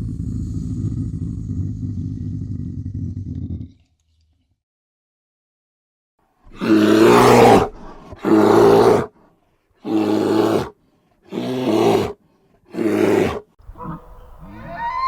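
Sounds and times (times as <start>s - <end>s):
animal roaring: 0.0s - 3.9s, 6.5s - 9.1s.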